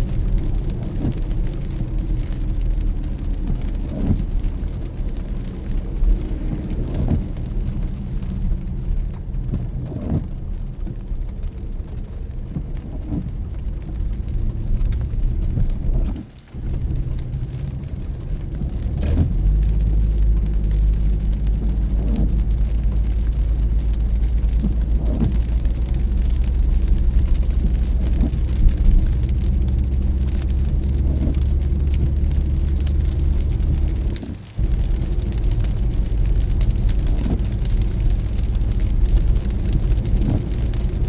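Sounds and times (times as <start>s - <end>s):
car engine and tyres rumbling: 0.0s - 41.0s.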